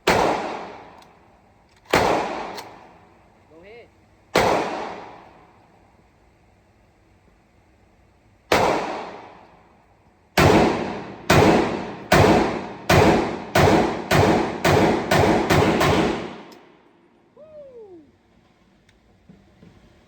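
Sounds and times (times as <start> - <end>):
pistol shots echoing: 0.0 - 1.0, 1.9 - 2.8, 4.3 - 5.2, 8.5 - 9.4, 10.4 - 16.5.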